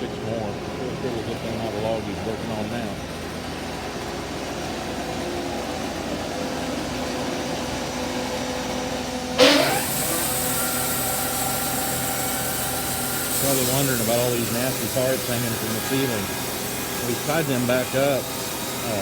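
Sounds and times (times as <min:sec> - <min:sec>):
sawmill machinery humming: 0:00.0 - 0:19.0
loud burst sweeping in pitch: 0:09.4 - 0:10.4.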